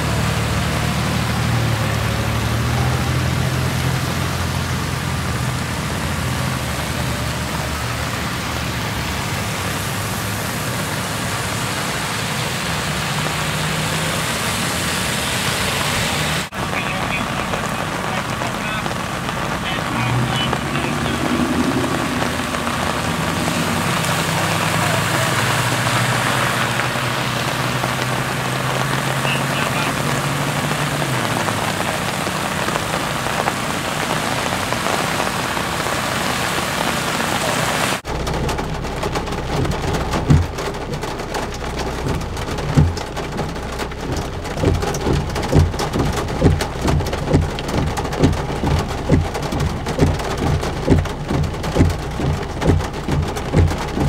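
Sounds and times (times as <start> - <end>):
heavy rain hissing: 0.0 - 54.0
low thumps: 38.1 - 54.0.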